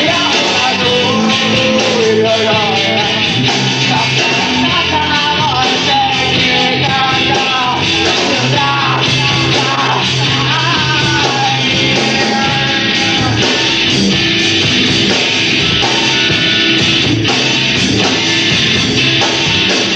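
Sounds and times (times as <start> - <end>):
person singing: 0.0 - 14.0
rock band playing: 0.0 - 19.9.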